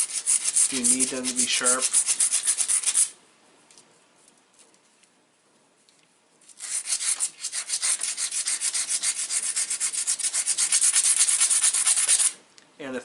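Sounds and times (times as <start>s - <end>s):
stone rubbing on stone: 0.0s - 3.1s, 6.6s - 12.4s.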